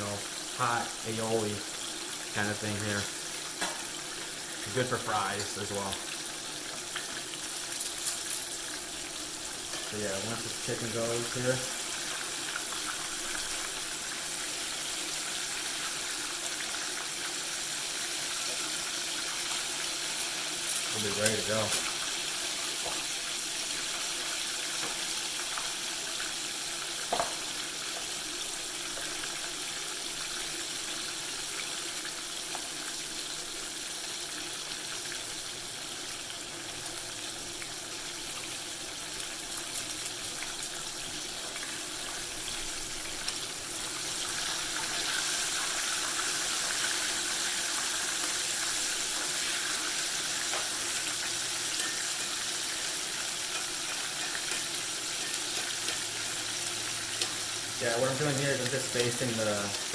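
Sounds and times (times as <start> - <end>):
chicken deep-frying in oil: 0.0 - 59.9.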